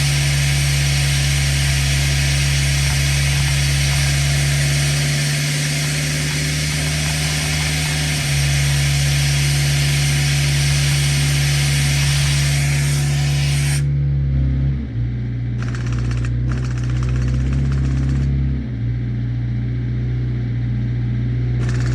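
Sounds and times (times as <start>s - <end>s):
impact wrench hammering: 0.0s - 13.8s, 15.6s - 18.4s, 21.6s - 21.9s
impact wrench hissing: 0.0s - 13.9s
steady engine hum: 0.0s - 21.9s.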